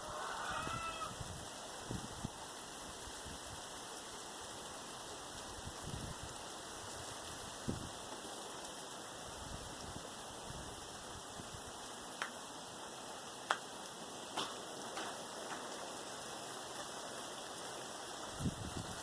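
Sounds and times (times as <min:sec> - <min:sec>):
steady rain falling: 0:00.0 - 0:19.0
single raindrops striking close: 0:12.1 - 0:16.0.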